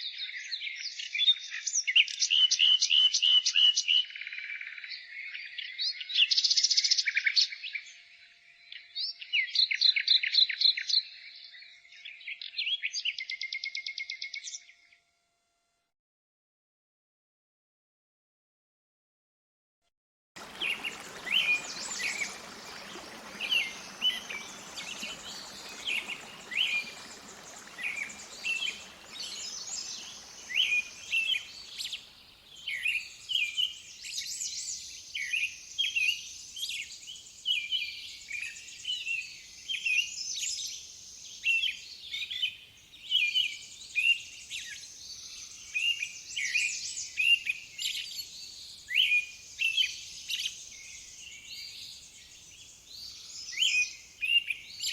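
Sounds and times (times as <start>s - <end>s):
songbirds chirping and singing: 20.4s - 33.8s
faint background hiss: 20.4s - 38.0s.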